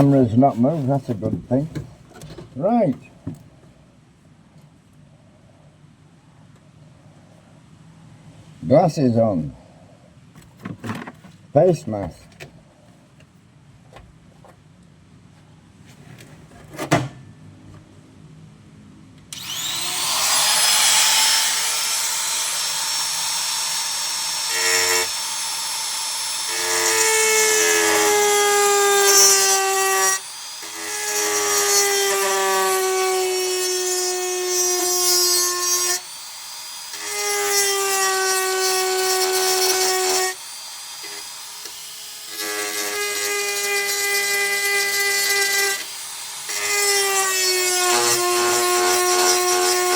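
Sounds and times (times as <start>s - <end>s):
grinder cutting sheet steel: 19.4s - 49.9s.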